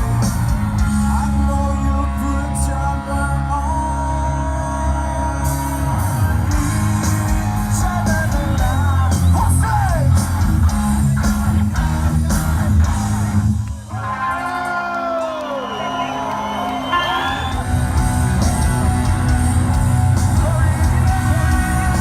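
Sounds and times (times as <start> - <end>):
bass guitar: 0.0 - 14.1, 17.4 - 22.0
electric guitars: 0.0 - 15.3, 16.0 - 22.0
drums: 0.0 - 22.0
person singing: 0.8 - 10.8, 20.2 - 22.0.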